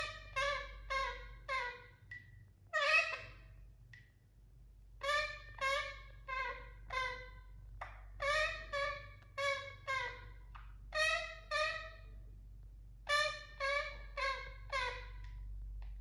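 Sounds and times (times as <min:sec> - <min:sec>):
parakeet short calls: 0:02.7 - 0:03.5.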